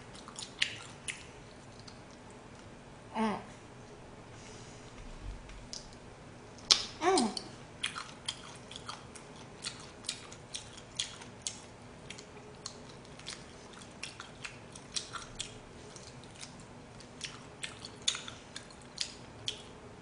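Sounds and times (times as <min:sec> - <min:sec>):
chewing and gnawing on bone: 0:00.0 - 0:02.6, 0:07.8 - 0:19.8.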